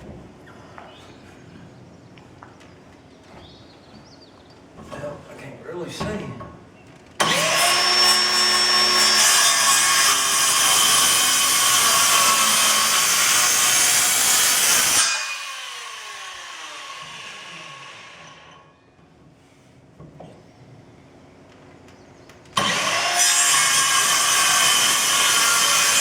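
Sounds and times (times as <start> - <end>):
circular saw cutting wood: 7.2 - 18.6, 22.6 - 26.0.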